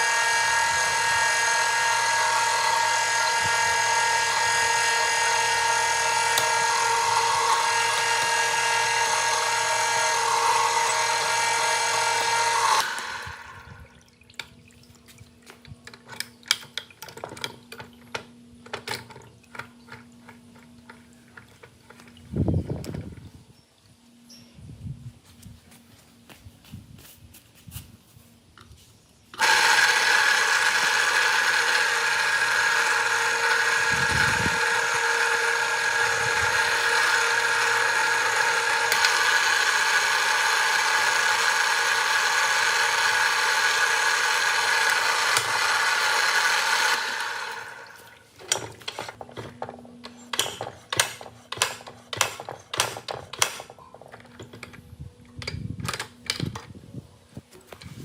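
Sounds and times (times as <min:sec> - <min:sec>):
electric motor whining: 0:00.0 - 0:14.0, 0:29.4 - 0:48.1
sharp clicks and knocks: 0:48.4 - 0:56.8.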